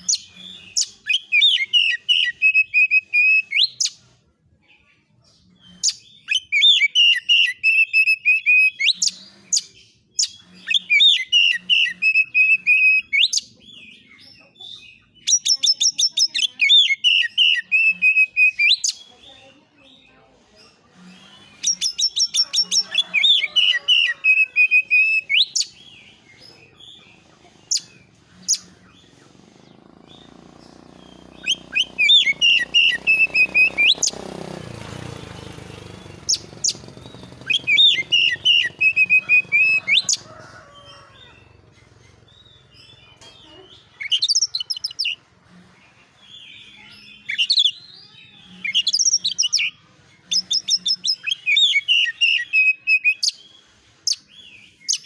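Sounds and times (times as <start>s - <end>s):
bird chirping and whistling: 0.0s - 4.0s, 5.8s - 13.5s, 15.2s - 19.1s, 21.6s - 26.0s, 31.0s - 34.2s, 35.4s - 40.2s, 44.0s - 45.2s, 47.2s - 47.8s, 48.6s - 53.4s, 54.8s - 55.0s.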